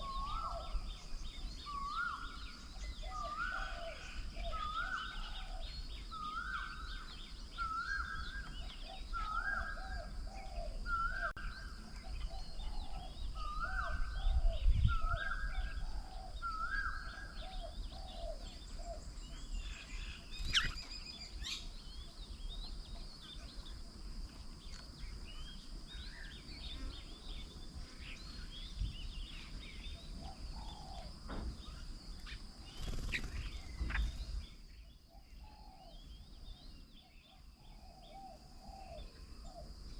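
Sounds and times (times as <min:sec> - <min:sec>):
birds chirping and twittering: 0:00.0 - 0:39.9
high-pitched insect-like hum: 0:00.0 - 0:39.9.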